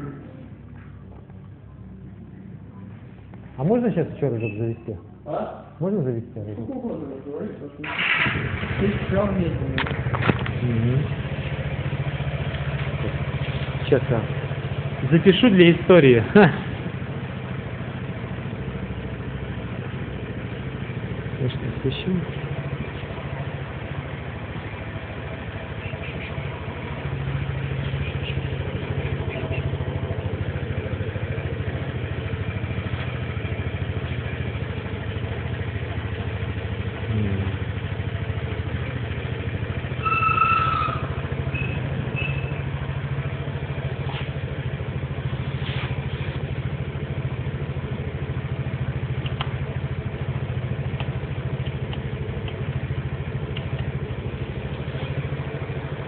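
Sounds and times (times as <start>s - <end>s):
scooter engine idling: 0.0s - 56.0s
short high whistle-like tone: 40.0s - 42.5s.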